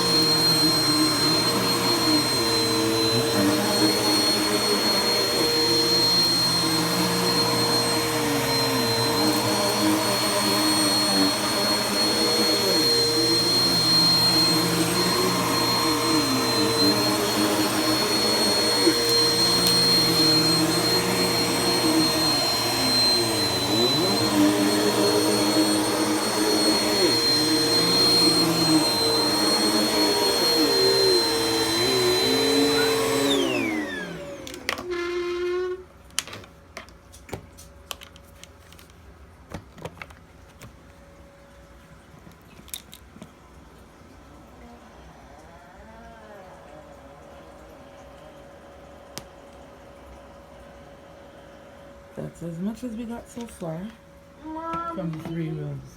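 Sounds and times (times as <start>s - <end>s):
vacuum cleaner winding down: 0.0s - 35.8s, 44.5s - 50.0s, 54.8s - 55.8s
vacuum cleaner running: 0.0s - 36.5s, 44.2s - 55.9s.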